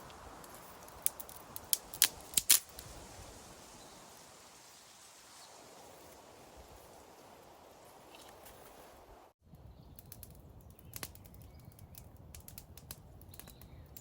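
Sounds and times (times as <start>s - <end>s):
sharp cracks: 0.0s - 2.9s
faint outdoor background: 0.0s - 14.0s.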